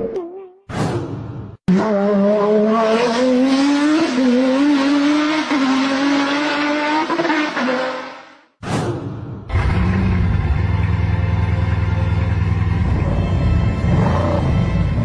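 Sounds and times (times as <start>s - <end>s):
engine at high revs: 1.7s - 8.4s, 9.5s - 11.5s.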